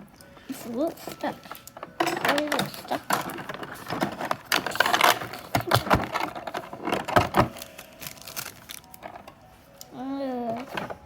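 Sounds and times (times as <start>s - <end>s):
packaging clicking and rattling: 0.6s - 9.4s.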